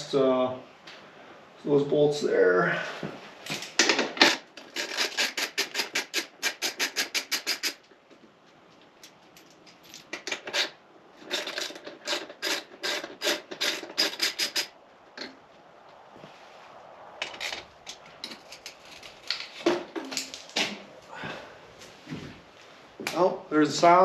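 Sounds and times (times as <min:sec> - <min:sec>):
hand ratchet clicking: 0:04.2 - 0:07.8, 0:09.9 - 0:14.7.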